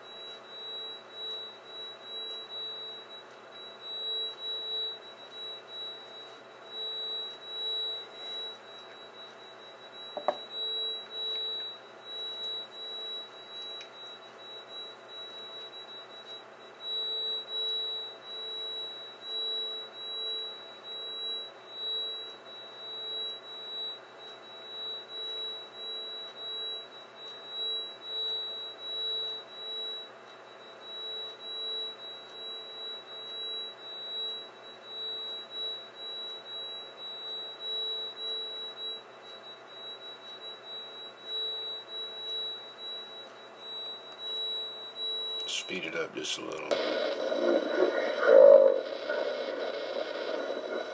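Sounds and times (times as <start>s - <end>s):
pulsing droning hum: 31.2s - 50.9s.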